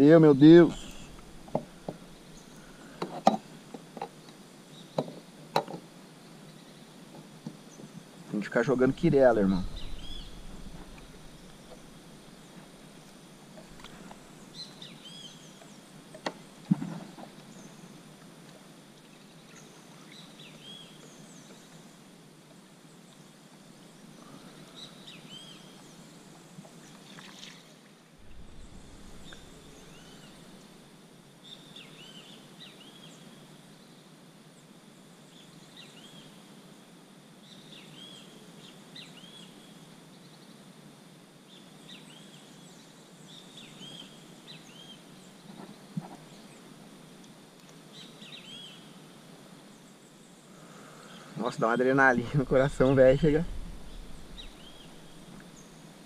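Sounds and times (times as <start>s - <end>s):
birds chirping: 0.0s - 3.0s, 7.7s - 15.9s, 28.2s - 30.9s, 50.6s - 55.9s
faint steady hiss: 0.0s - 56.0s.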